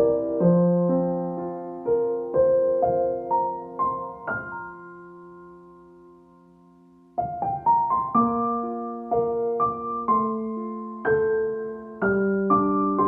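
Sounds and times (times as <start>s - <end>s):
soft solo piano: 0.0s - 13.0s.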